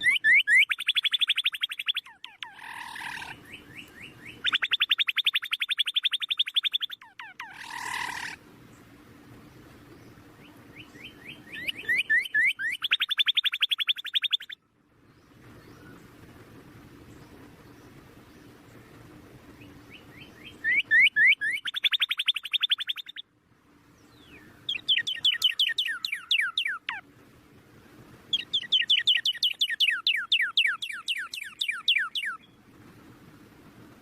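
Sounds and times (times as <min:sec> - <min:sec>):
baby birds begging chirps: 0:24.7 - 0:27.0, 0:28.3 - 0:32.4.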